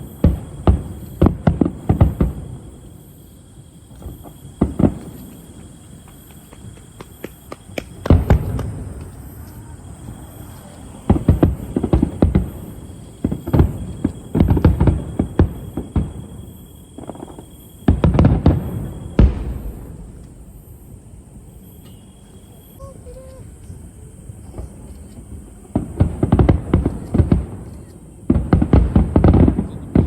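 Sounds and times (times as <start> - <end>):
fireworks bangs with rumbling echo: 0.0 - 22.8, 23.8 - 30.0.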